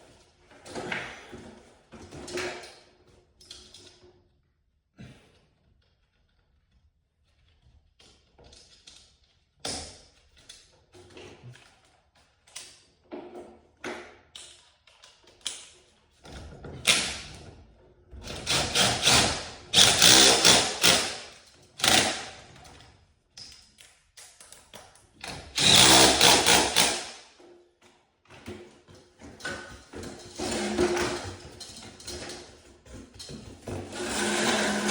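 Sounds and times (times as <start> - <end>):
power tool running: 18.5 - 21.2, 25.6 - 27.1, 33.9 - 34.9.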